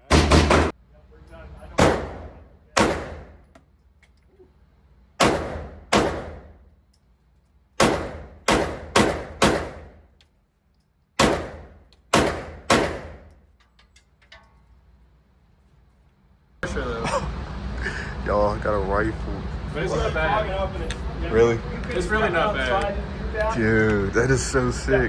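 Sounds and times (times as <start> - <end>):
pistol shots: 1.8 - 3.4, 5.2 - 6.6, 7.8 - 10.0, 11.2 - 13.3.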